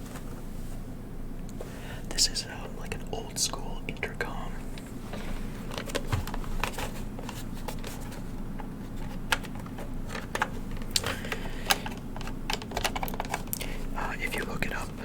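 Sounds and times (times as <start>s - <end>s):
intercom handling clicks and taps: 8.6s - 13.7s.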